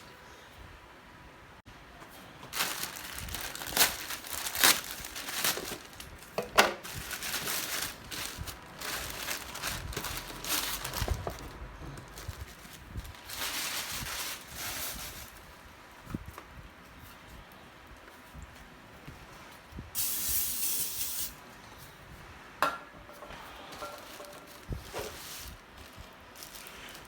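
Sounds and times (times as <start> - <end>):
packaging crinkling and rustling: 2.4 - 16.3, 23.8 - 27.0.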